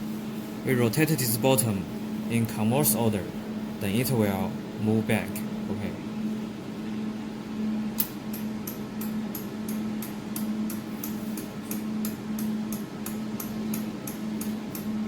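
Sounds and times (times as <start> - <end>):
laser welding machine humming: 0.0 - 15.0.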